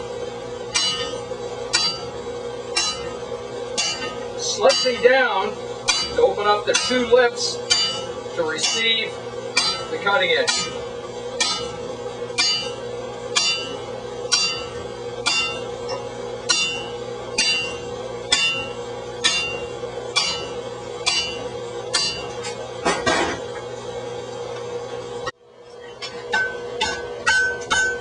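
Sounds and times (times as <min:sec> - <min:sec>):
steady hum: 0:00.0 - 0:28.0
hammer striking chisel on steel: 0:00.7 - 0:02.1, 0:02.7 - 0:03.2, 0:03.8 - 0:05.1, 0:05.8 - 0:10.8, 0:11.4 - 0:11.8, 0:12.4 - 0:22.4, 0:26.0 - 0:28.0.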